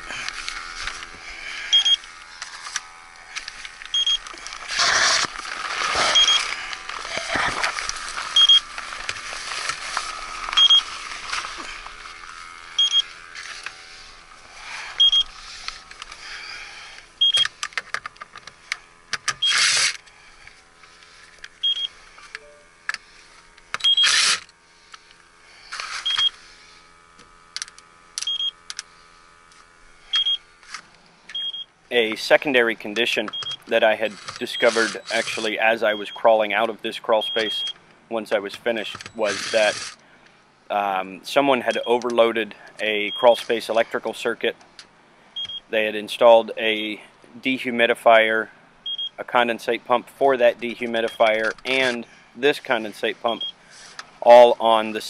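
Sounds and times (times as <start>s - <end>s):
leak detector short high beeps: 1.7s - 2.0s, 3.9s - 4.3s, 6.1s - 6.5s, 8.4s - 8.6s, 10.6s - 10.9s, 12.8s - 13.1s, 15.0s - 15.3s, 17.2s - 17.5s, 21.6s - 22.7s, 23.8s - 24.2s, 26.0s - 26.4s, 30.1s - 30.4s, 31.3s - 31.7s, 48.9s - 49.2s, 53.3s - 53.6s.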